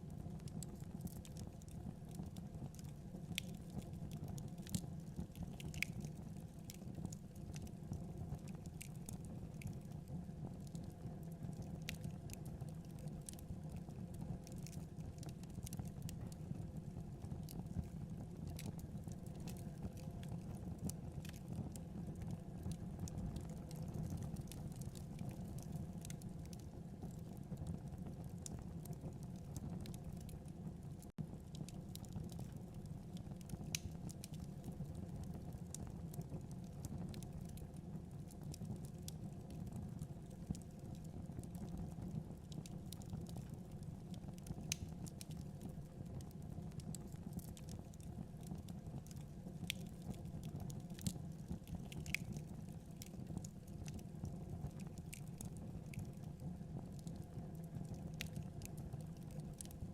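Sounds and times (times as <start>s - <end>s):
fire crackling and popping: 0.0s - 59.9s
fire flames rumbling: 0.0s - 59.9s.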